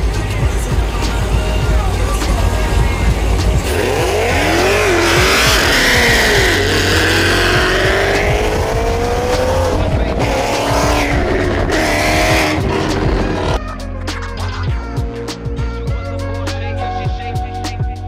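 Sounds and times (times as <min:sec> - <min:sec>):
car engine revving and accelerating: 0:00.0 - 0:13.6.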